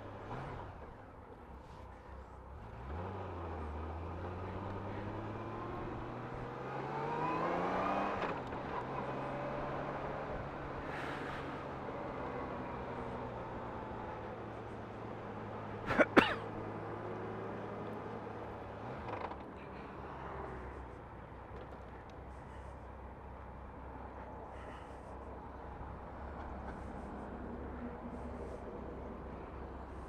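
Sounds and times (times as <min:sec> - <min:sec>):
road and wind noise: 0:00.0 - 0:30.0.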